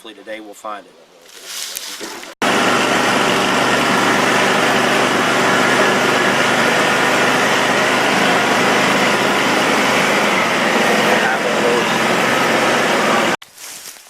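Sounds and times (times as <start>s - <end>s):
engine running loudly: 2.4s - 13.4s.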